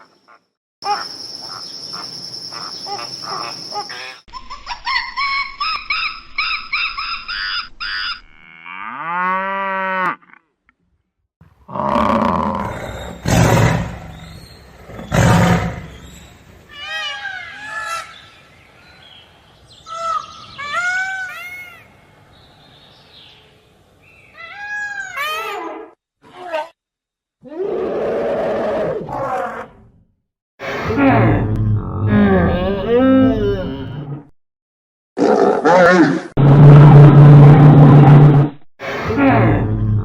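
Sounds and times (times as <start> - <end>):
short chirping calls: 0.0 - 4.2
deep animal roars: 11.7 - 16.2, 30.7 - 34.3, 35.2 - 40.0.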